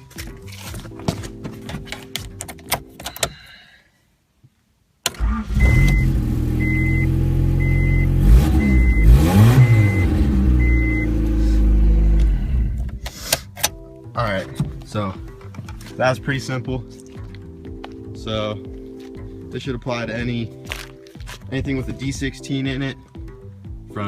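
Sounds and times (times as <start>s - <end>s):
background music: 0.0s - 3.8s, 5.1s - 24.0s
car engine starting and revving: 5.1s - 13.0s
short electronic beep: 5.6s - 11.2s.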